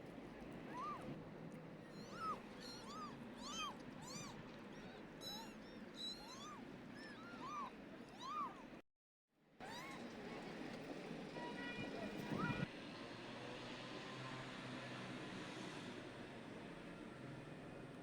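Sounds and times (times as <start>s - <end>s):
kittens mewing: 2.0s - 8.7s.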